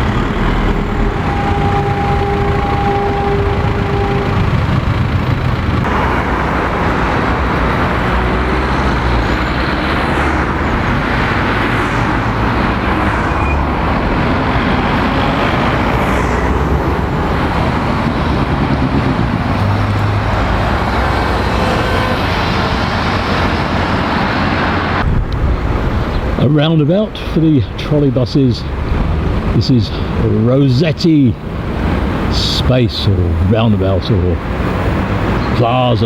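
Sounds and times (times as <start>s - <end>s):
cars passing: 0.0s - 36.0s
engine rumble: 0.0s - 36.0s.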